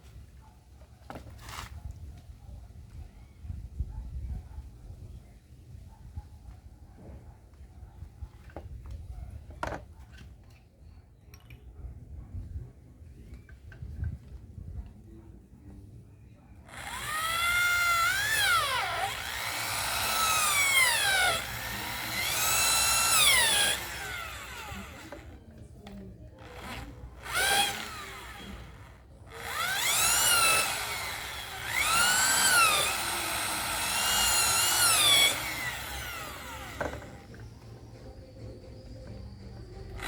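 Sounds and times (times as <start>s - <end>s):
electric drill whine: 16.7s - 25.3s, 26.4s - 37.5s.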